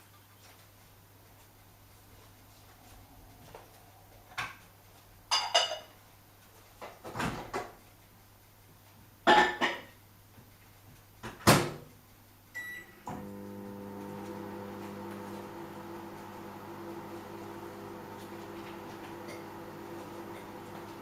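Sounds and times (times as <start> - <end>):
washing machine knocks and clunks: 11.2 - 11.8
washing machine humming: 12.6 - 21.0.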